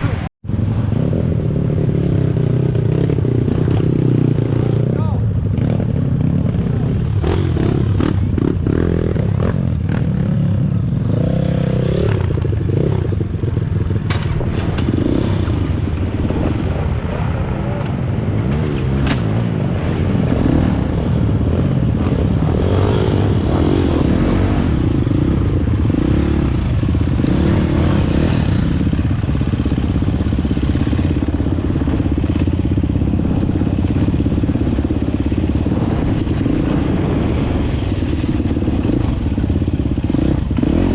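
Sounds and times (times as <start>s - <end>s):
dirt bike engine revving: 0.8s - 40.9s
bike clatter and knocks: 14.0s - 15.0s.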